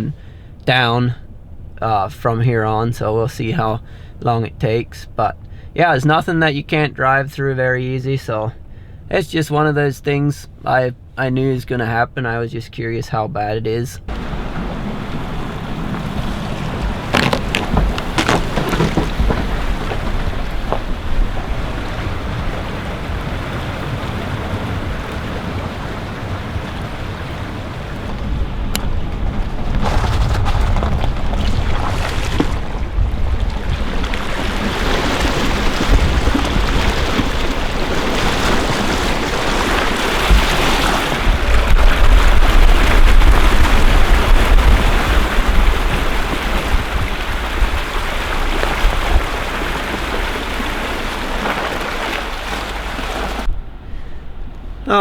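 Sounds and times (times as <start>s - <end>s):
floodwater rushing: 14.1s - 53.5s
wind buffeting microphone: 14.1s - 55.0s.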